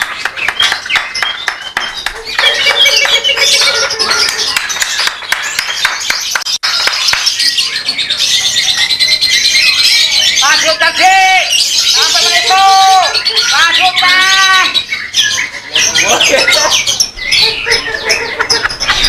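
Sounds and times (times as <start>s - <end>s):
many birds twittering: 0.0s - 19.0s.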